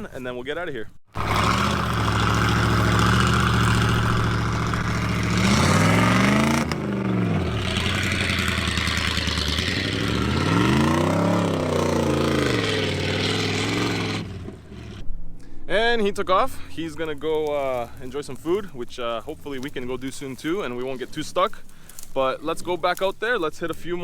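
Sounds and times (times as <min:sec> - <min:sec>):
vehicle engine revving: 0:01.1 - 0:15.0.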